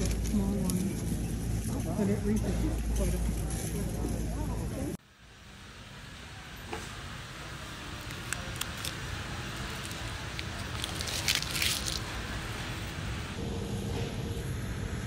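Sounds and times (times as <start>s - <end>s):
low store rumble: 0.0s - 15.0s
person chewing pizza: 8.1s - 12.1s.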